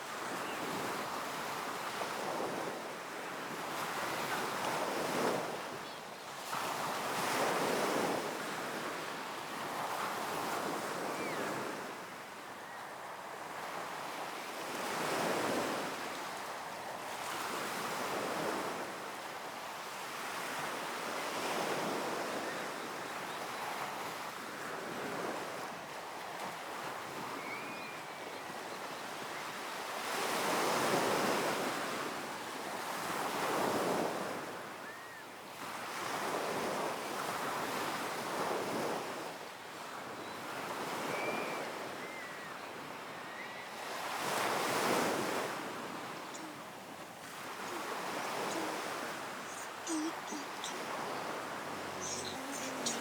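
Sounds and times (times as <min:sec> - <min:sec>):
waves breaking: 0:43.8 - 0:53.0
faint high chirps: 0:46.2 - 0:46.7, 0:47.6 - 0:53.0.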